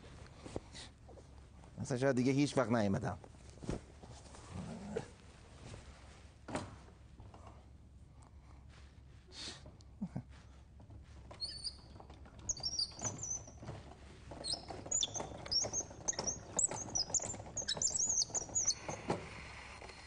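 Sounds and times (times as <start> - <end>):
small birds twittering: 11.4 - 13.6, 14.4 - 19.1.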